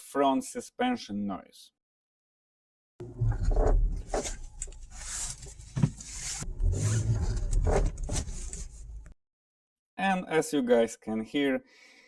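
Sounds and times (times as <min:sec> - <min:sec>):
suspension creaking and knocking: 0:03.0 - 0:09.1.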